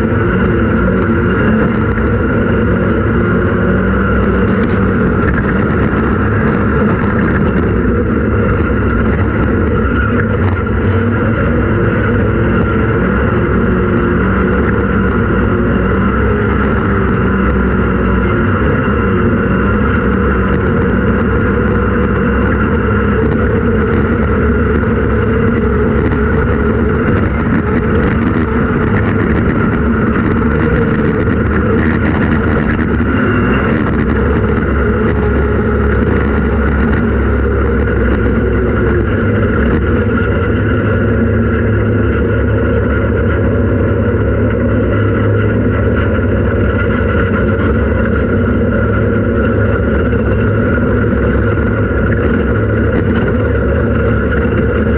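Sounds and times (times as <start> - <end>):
race vehicle engine running hard: 0.0 - 54.9.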